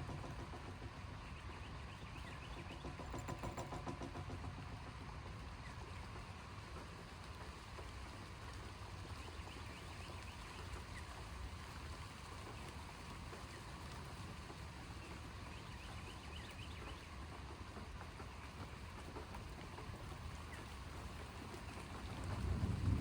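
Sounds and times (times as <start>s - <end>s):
low storm rumble: 21.7s - 23.0s.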